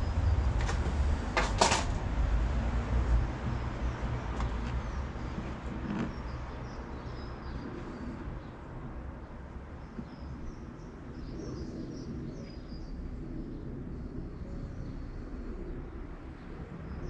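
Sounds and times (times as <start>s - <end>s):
low background rumble: 0.0s - 17.0s
small birds chirping: 3.4s - 17.0s.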